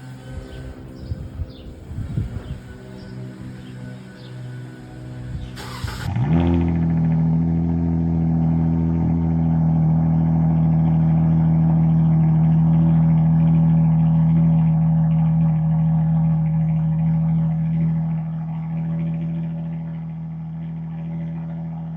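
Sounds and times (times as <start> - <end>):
car engine starting and idling: 0.0 - 21.9
engine cranking: 4.2 - 6.4.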